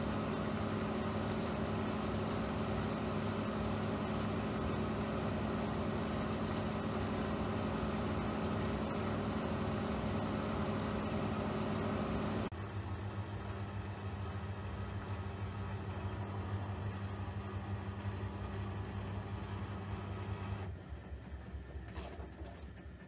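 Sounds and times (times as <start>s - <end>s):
machine hum with low drone: 0.0s - 18.5s.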